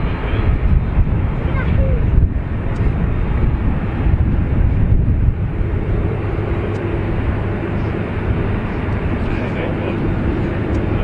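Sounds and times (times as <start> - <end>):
jet engines rumbling: 0.0 - 11.0
faint steady hum: 2.6 - 11.0.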